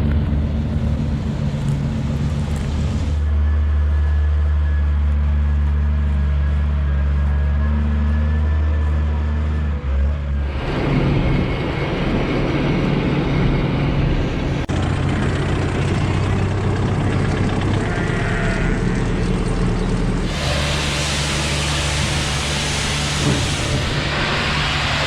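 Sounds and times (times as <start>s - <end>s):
combine harvester running: 0.0s - 25.0s.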